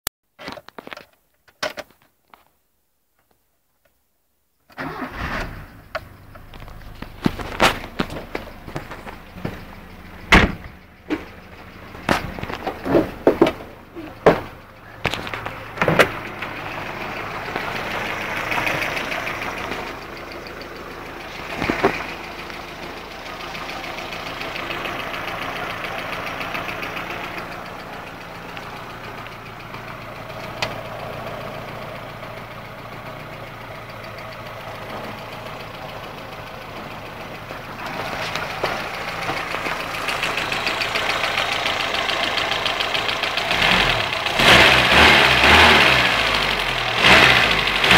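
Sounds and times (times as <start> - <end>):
car engine idling: 4.8 - 47.9.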